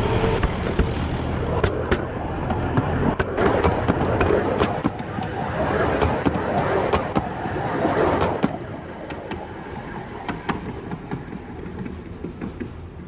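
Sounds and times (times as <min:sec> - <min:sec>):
train rumbling overhead: 0:00.0 - 0:13.0
wheels clicking on track: 0:08.1 - 0:13.0.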